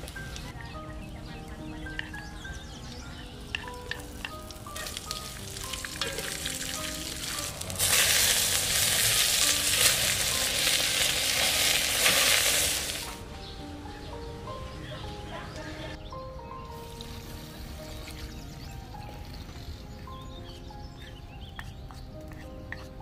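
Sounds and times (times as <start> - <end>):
soft background music: 0.0 - 23.0
meat sizzling in a pot: 3.9 - 13.2.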